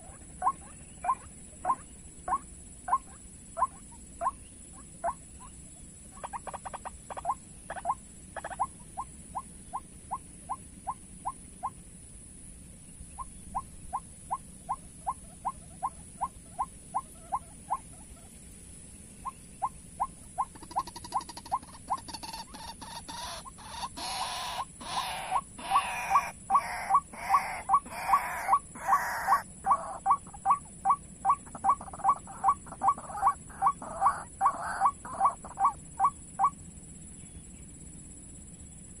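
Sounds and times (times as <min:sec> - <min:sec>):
waterhen calling: 0:00.0 - 0:05.5, 0:06.1 - 0:11.8, 0:19.2 - 0:36.6.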